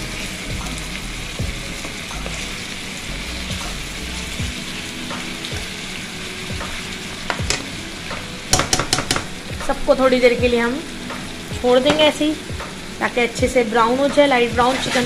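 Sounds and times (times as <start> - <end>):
chicken frying in hot oil: 0.0 - 15.0
spatula knocking against pan: 7.3 - 7.7, 8.5 - 9.4.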